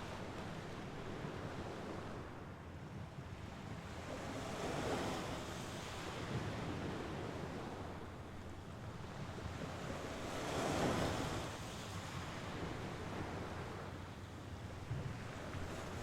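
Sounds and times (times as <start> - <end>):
waves washing onto shore: 3.9 - 16.0.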